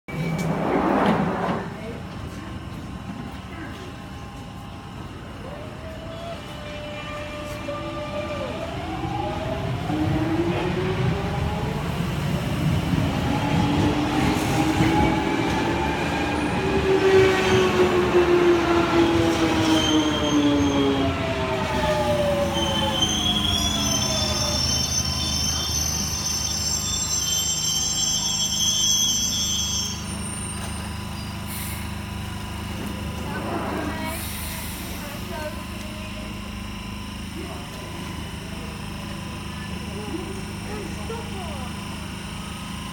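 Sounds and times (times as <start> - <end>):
train traction motors whining: 0.3 - 42.9
wheels and brakes squealing: 19.6 - 32.0.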